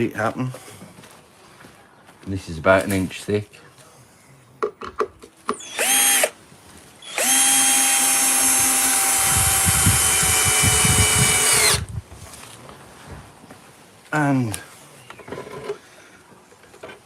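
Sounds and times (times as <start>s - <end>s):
low knocking of drill bit: 5.6s - 6.3s, 7.1s - 11.9s
power drill drilling into wood: 5.6s - 6.4s, 7.0s - 11.9s.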